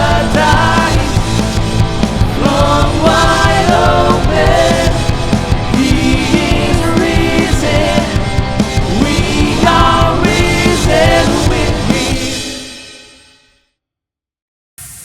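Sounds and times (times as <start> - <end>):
person singing: 0.0 - 1.5, 2.3 - 12.6
band with drums: 0.0 - 13.3.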